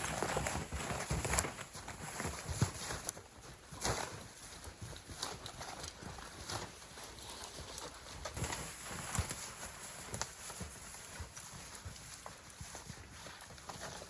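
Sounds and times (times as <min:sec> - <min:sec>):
footsteps crunching through snow: 0:00.0 - 0:14.0.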